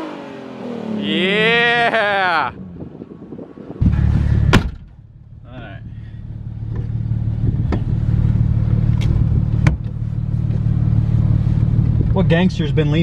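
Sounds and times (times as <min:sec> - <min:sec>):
car engine idling: 0:03.8 - 0:13.0.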